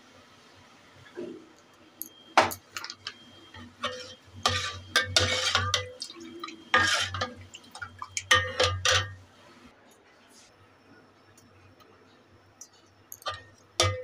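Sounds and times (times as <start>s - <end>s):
spoon scraping a metal bowl: 3.6s - 7.4s.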